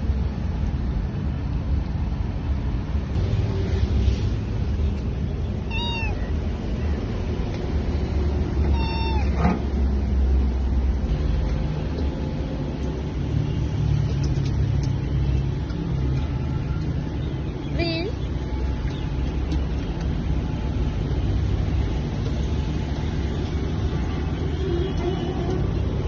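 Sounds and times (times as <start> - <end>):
cat meowing: 5.7 - 6.3, 8.6 - 9.5.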